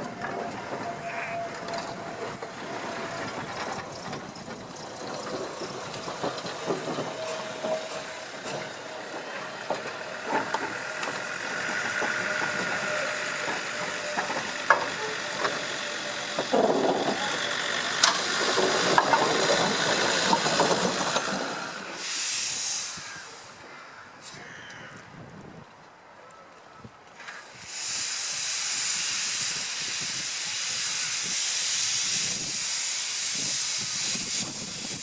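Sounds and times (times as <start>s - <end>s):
steam hissing: 0.0s - 23.6s, 27.3s - 35.0s
loud burst of steam hiss: 5.5s - 23.6s, 27.3s - 35.0s.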